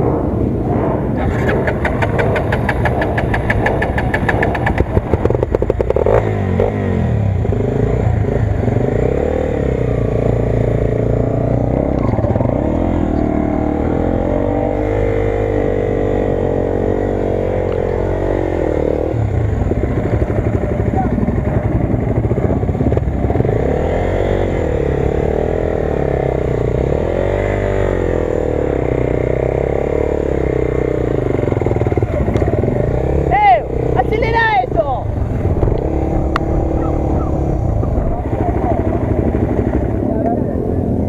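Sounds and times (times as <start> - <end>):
engine revving: 0.0 - 41.0
fast rattling tick: 1.4 - 5.8.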